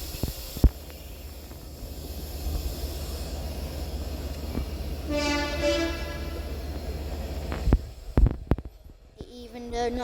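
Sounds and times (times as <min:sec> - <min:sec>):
low steady rumble: 0:00.0 - 0:10.0
train horn blasts: 0:05.1 - 0:06.6.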